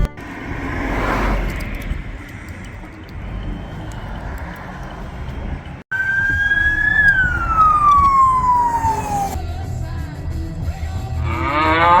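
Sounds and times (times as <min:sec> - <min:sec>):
slide whistle tone: 0:05.9 - 0:09.4.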